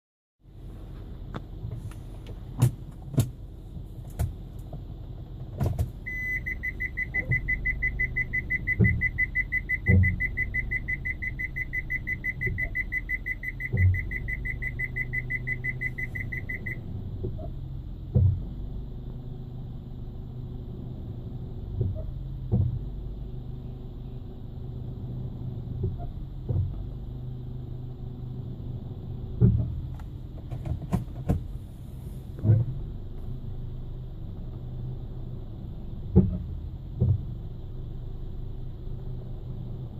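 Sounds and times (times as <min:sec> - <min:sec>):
low vehicle hum: 0:00.4 - 0:39.9
rapid electronic warning beep: 0:06.1 - 0:16.8.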